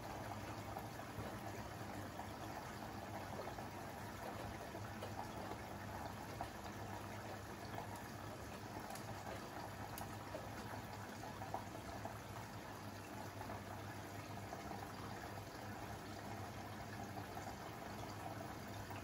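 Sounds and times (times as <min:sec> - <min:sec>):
washing machine hum: 0:00.0 - 0:19.0
water swishing in washing machine: 0:00.0 - 0:19.0
faint ticks: 0:09.9 - 0:10.2.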